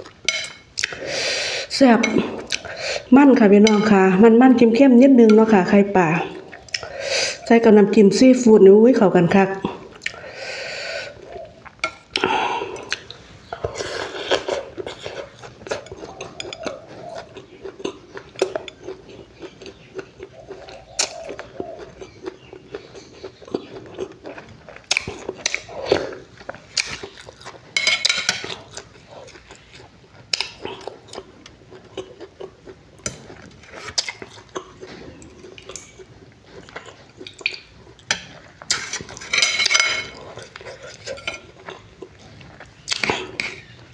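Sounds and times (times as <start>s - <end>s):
person chewing: 0.0s - 3.1s, 6.2s - 7.5s, 9.6s - 43.9s
spoon clinking on dish: 0.3s - 0.6s, 3.6s - 4.0s.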